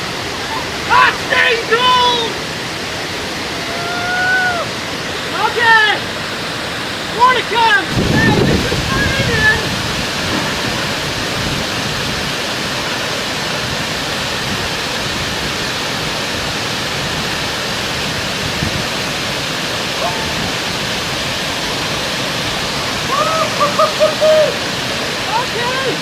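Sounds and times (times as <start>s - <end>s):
waterfall rushing: 0.0s - 26.0s
person calling out: 20.0s - 20.6s, 23.1s - 24.6s.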